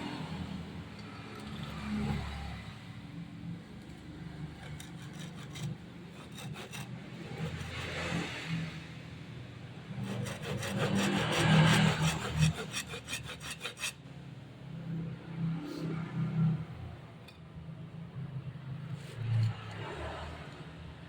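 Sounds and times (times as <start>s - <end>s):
saw cutting wood: 4.6s - 8.6s, 10.0s - 14.0s.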